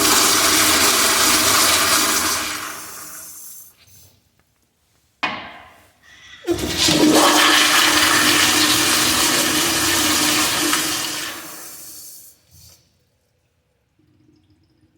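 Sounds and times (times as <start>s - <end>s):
toilet flushing: 0.0s - 3.8s, 6.4s - 12.8s.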